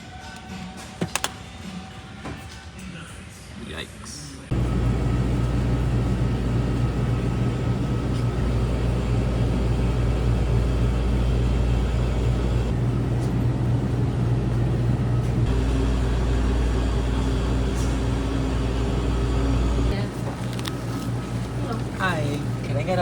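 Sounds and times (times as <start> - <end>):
car road and engine rumble: 4.5 - 12.9.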